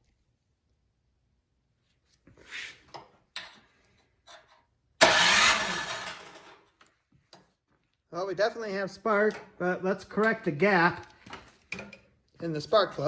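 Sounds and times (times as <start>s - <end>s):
engine cranking whirr: 5.0s - 6.6s.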